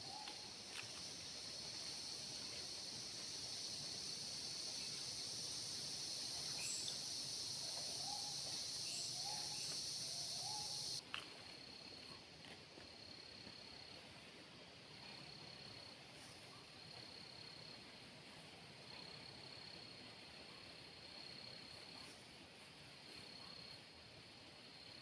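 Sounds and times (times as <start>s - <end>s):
insects shrilling: 4.1s - 11.0s.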